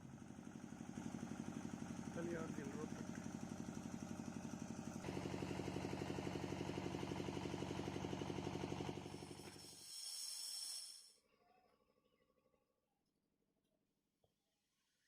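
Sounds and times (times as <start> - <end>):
engine idling: 0.0 - 11.1
brief high hiss: 9.2 - 11.2.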